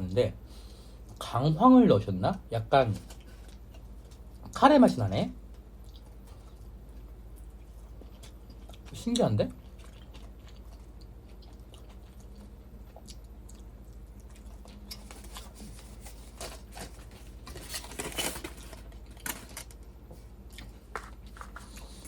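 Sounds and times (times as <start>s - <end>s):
faint steady hum: 0.0s - 22.0s
person chewing food: 3.1s - 4.5s, 5.4s - 17.4s, 20.1s - 22.0s.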